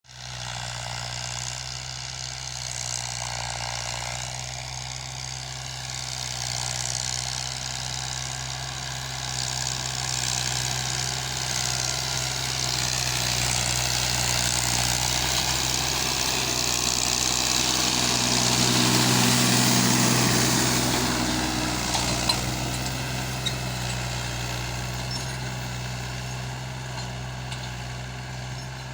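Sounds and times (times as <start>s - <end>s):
tractor diesel engine running: 0.2s - 28.9s.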